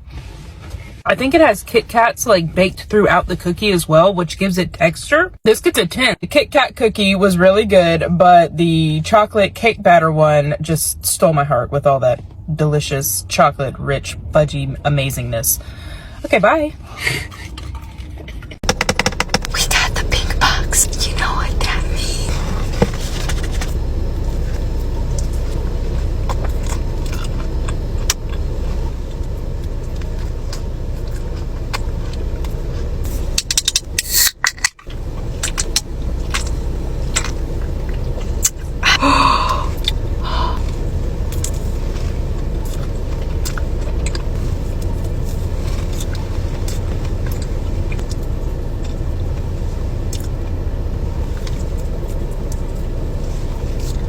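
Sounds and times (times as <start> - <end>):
car interior rumble: 0.0 - 34.0, 34.8 - 54.0.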